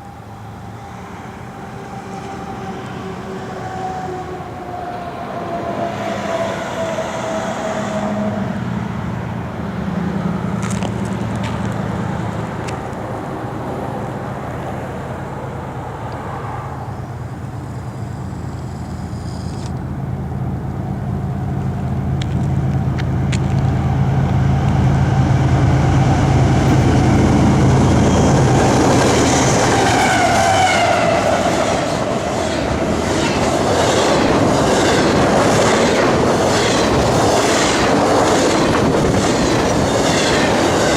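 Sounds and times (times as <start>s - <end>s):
diesel locomotive engines droning: 0.0s - 40.9s
train wheels clickety-clack: 26.6s - 40.9s.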